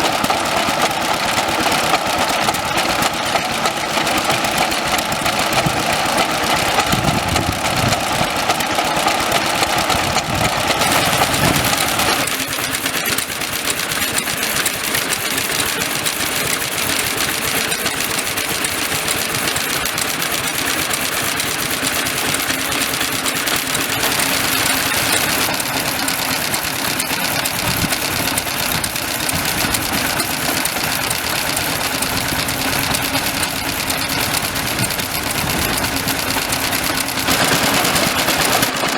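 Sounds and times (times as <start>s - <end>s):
stationary engines running: 0.0s - 38.9s.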